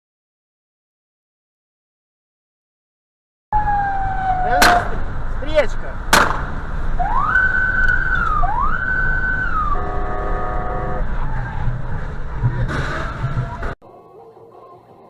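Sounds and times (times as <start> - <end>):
whooping siren: 3.5 - 5.0, 7.0 - 12.2
road and engine rumble: 3.6 - 15.0
multi-tone horn blast: 9.6 - 11.2.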